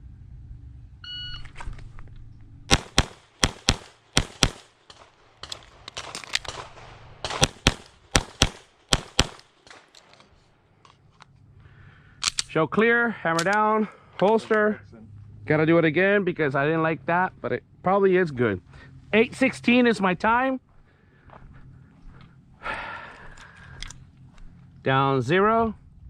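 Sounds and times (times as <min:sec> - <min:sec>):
shot timer beep: 0:01.0 - 0:01.5
pistol shots: 0:02.7 - 0:10.1.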